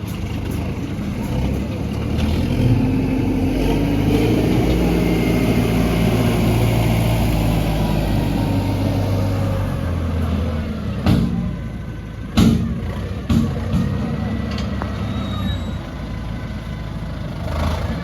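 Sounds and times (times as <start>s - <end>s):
heavy diesel machinery engine: 0.0s - 18.0s
sharp knocks: 12.4s - 14.1s.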